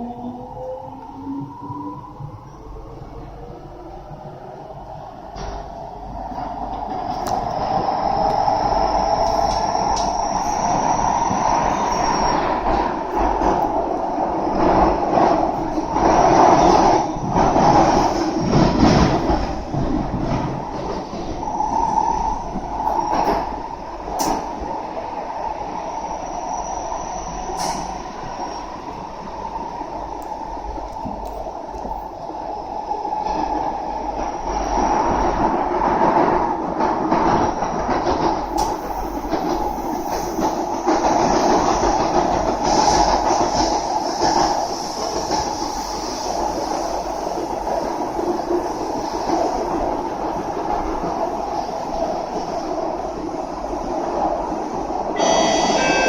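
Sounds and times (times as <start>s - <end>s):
wheels rumbling on rail: 0.0s - 56.0s
faint high squeal: 8.0s - 13.0s, 25.8s - 28.8s, 55.2s - 56.0s.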